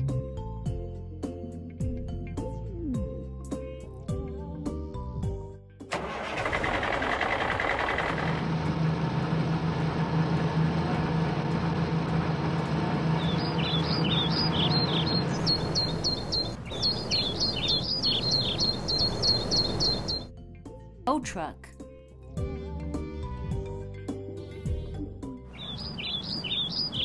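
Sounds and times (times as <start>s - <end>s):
truck engine humming: 5.9s - 20.3s, 25.5s - 27.0s
birds chirping: 11.2s - 20.3s, 25.5s - 27.0s.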